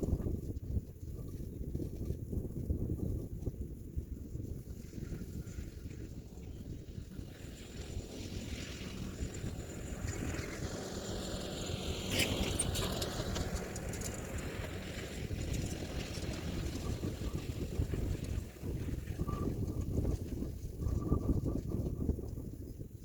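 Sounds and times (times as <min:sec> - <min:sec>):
tractor diesel engine under load: 0:07.0 - 0:19.2.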